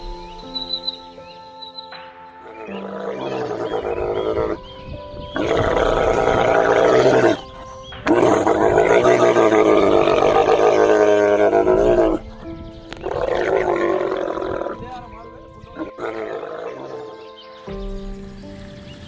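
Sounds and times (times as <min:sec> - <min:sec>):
big cat roaring: 0:02.5 - 0:04.6, 0:05.4 - 0:12.4, 0:13.0 - 0:14.8, 0:15.7 - 0:17.2.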